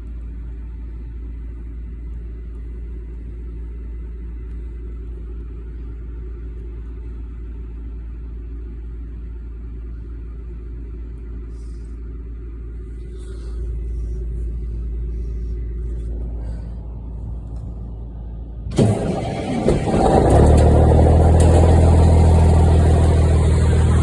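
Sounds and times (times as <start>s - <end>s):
car engine idling: 12.9s - 24.0s.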